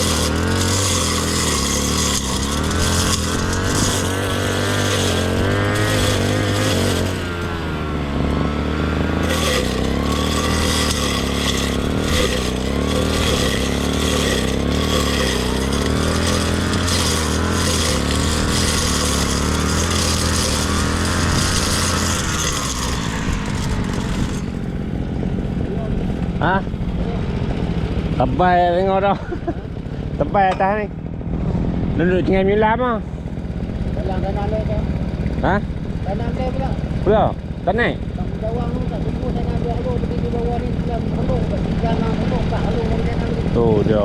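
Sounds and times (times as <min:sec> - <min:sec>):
grass cutter engine running: 0:00.0 - 0:31.2, 0:32.2 - 0:44.0.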